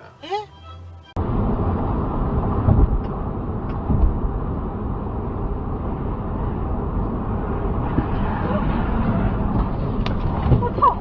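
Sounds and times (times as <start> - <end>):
vehicle road and engine noise: 0.0 - 11.0
brief low thumps: 2.5 - 4.3.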